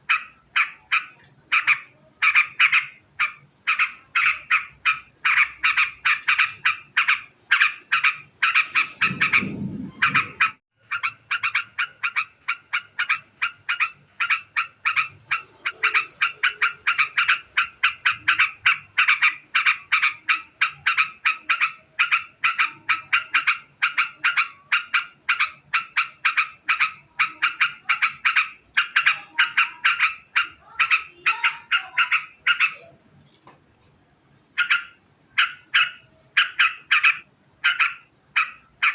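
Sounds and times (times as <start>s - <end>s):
bird fast chattering call: 0.0s - 32.8s, 34.6s - 38.9s
low rumble: 8.8s - 10.6s.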